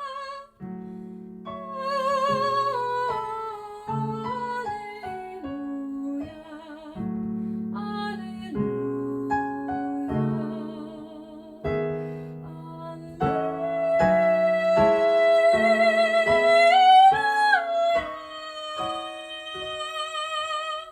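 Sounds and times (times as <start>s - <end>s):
piano chords: 0.0s - 20.9s
singer with vibrato: 12.5s - 20.9s.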